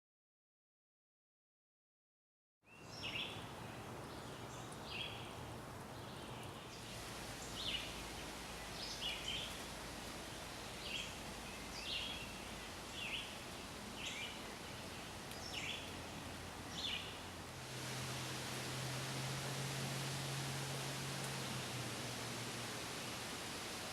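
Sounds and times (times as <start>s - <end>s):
background hiss: 2.7s - 23.9s
low steady hum: 6.7s - 23.9s.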